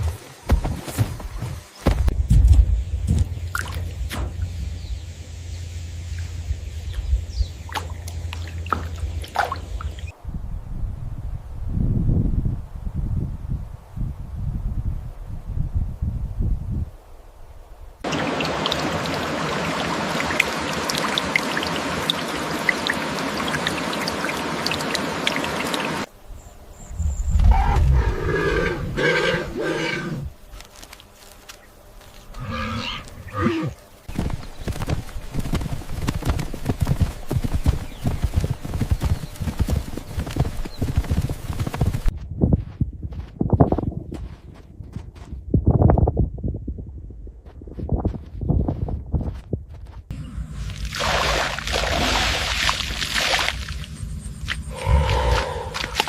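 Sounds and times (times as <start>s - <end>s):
running splashing water: 7.6s - 10.1s, 18.0s - 26.1s, 50.5s - 56.0s
running hoofbeats: 34.1s - 45.8s.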